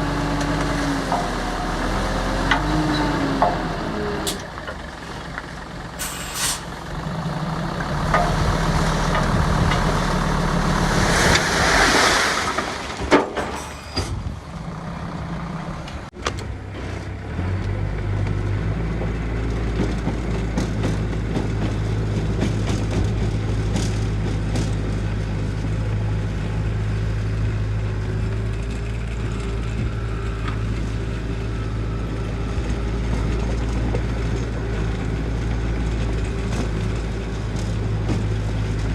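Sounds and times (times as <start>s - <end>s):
heavy diesel engine running: 0.0s - 11.7s, 13.2s - 38.9s
air hiss: 6.0s - 6.7s.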